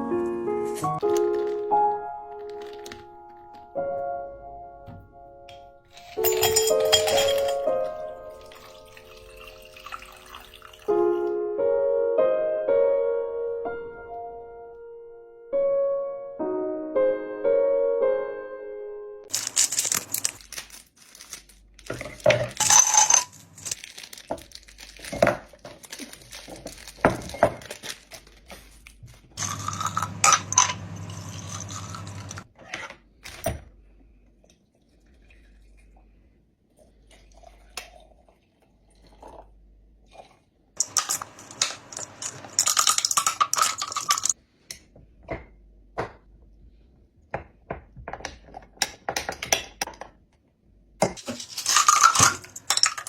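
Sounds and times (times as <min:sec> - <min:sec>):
glassware and ice clinking: 0:05.9 - 0:10.9, 0:22.6 - 0:23.8, 0:29.4 - 0:32.4, 0:40.8 - 0:44.4, 0:51.2 - 0:53.0.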